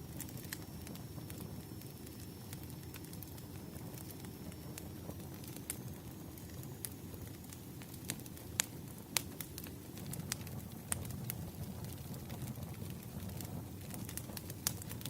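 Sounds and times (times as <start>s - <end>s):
firewood crackling and popping: 0.0s - 15.0s.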